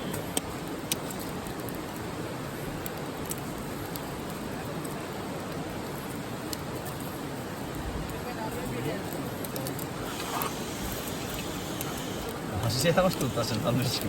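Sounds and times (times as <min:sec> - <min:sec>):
fire sharp pops: 0:00.0 - 0:02.0, 0:09.1 - 0:14.0
campfire crackling: 0:00.0 - 0:14.0
steady rushing background noise: 0:00.0 - 0:14.0.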